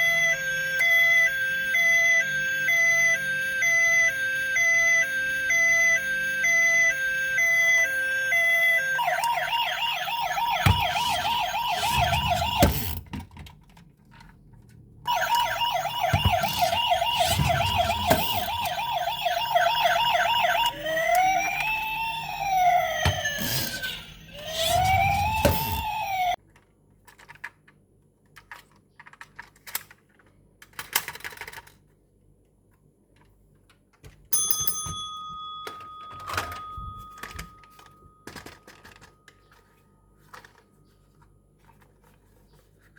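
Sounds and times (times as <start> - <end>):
toy electronic siren: 0.0 - 13.0, 15.1 - 26.4, 35.6 - 41.1.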